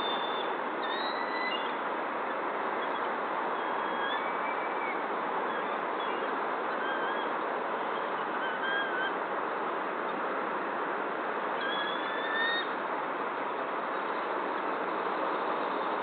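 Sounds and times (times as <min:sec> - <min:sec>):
bird whistled calls: 0:00.0 - 0:01.8, 0:03.6 - 0:07.3, 0:11.6 - 0:12.7
steady background hiss: 0:00.0 - 0:16.0.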